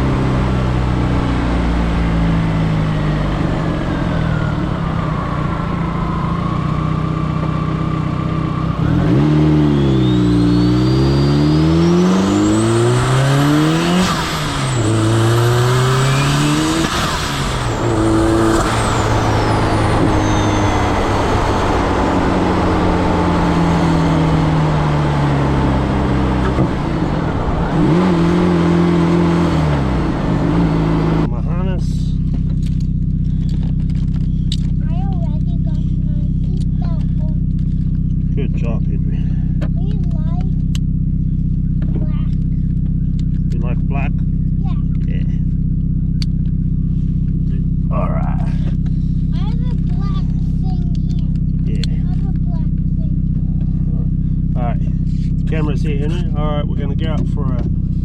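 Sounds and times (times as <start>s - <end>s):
turbo whine: 0.0s - 34.8s
turbocharged car engine revving: 0.0s - 58.0s.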